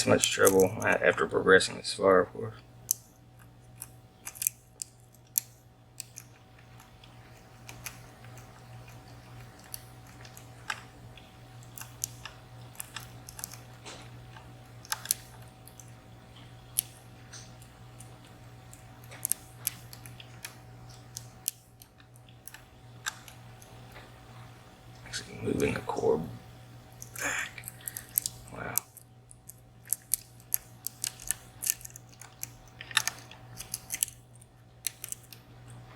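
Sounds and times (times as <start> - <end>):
low steady hum: 0.0 - 35.9
lock pick clicking on pins: 3.8 - 6.3, 27.9 - 35.4.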